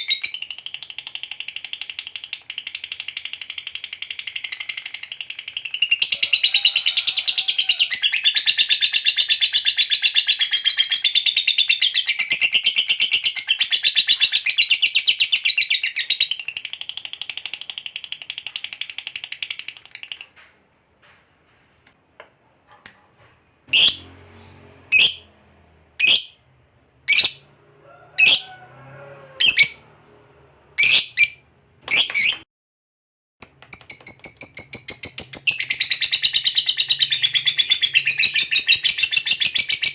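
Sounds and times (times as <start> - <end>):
lovebird trilling: 23.7 - 24.0, 24.9 - 25.3, 26.0 - 26.4, 27.1 - 27.4, 29.4 - 29.8
lovebird sharp chirps: 23.8 - 24.0, 26.0 - 26.4, 27.1 - 27.4, 30.8 - 32.4.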